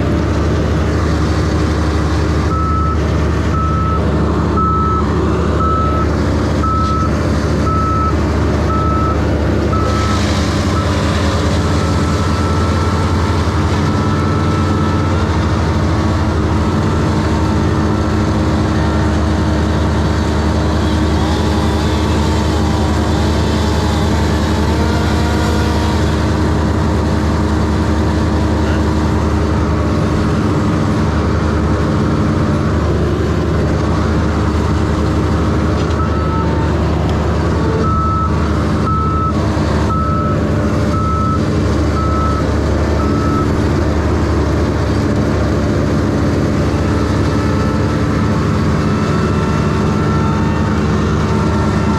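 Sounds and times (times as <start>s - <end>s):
heavy machine engine running: 0.0s - 51.9s
reversing alarm beeping: 2.5s - 15.7s, 35.9s - 36.6s, 37.7s - 43.6s, 47.5s - 51.9s.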